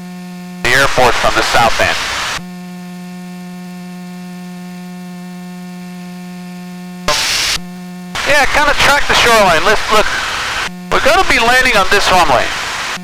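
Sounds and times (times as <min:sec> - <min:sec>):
hiss burst: 0:07.1 - 0:07.6, 0:09.8 - 0:10.7, 0:12.4 - 0:13.0
steady pitched hum: 0:07.1 - 0:13.0.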